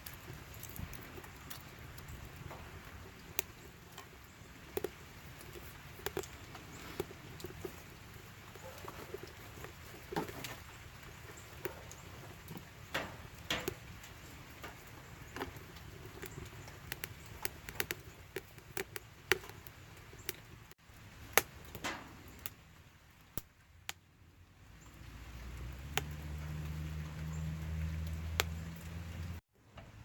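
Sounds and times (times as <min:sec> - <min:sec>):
dry sticks snapping and crackling: 0:00.0 - 0:20.6, 0:21.3 - 0:22.6, 0:25.4 - 0:29.3.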